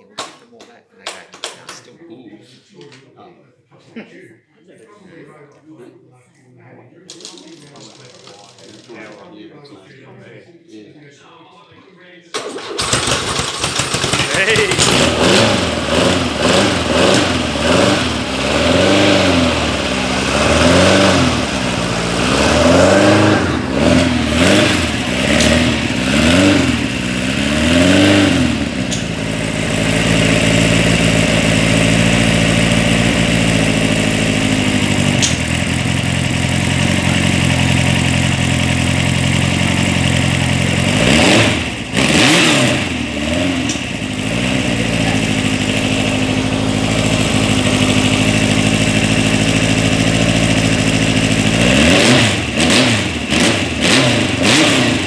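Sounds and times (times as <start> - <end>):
engine revving and idling: 12.4 - 55.0.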